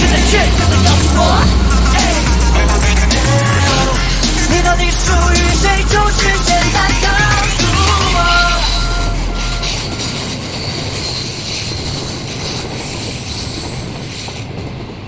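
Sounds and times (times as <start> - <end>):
pop song: 0.0 - 10.0
high-pitched squealing: 0.0 - 14.8
train running on rails: 0.0 - 15.0.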